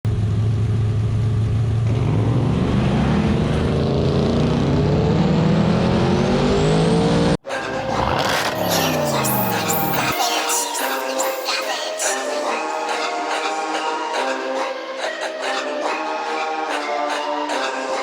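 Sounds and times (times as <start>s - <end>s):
drag racing car engine accelerating: 0.1s - 11.2s.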